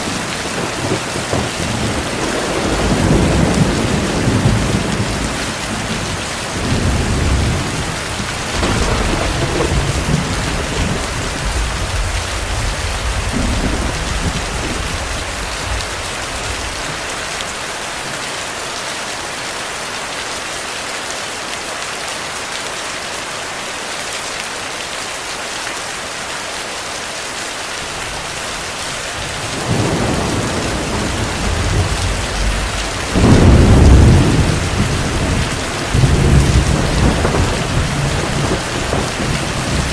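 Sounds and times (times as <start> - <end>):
heavy rain falling: 0.0 - 39.9
rolling thunder: 0.4 - 16.8, 29.2 - 39.9.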